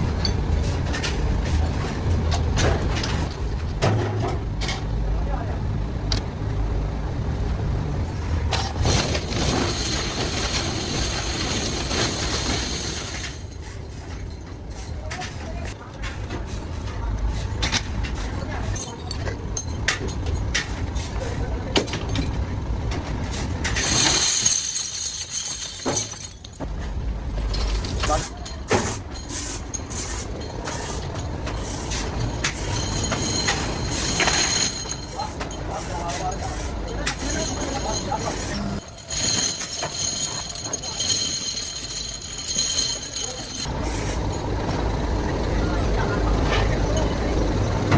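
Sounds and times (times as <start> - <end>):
factory machinery rumbling and clattering: 0.0 - 47.9.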